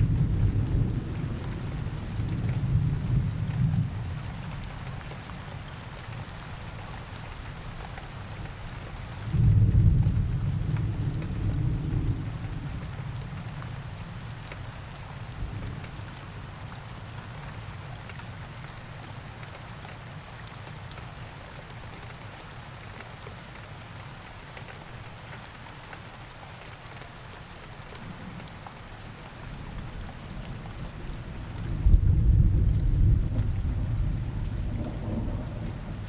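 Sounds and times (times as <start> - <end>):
steady rain hiss: 0.0 - 36.0
thunder rumble: 30.2 - 36.0.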